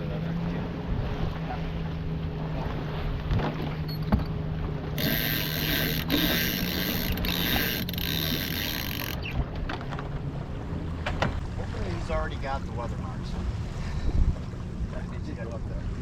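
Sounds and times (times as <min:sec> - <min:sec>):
water: 0:00.0 - 0:16.0
wind: 0:00.0 - 0:16.0
winch ratcheting clicks: 0:05.0 - 0:10.0.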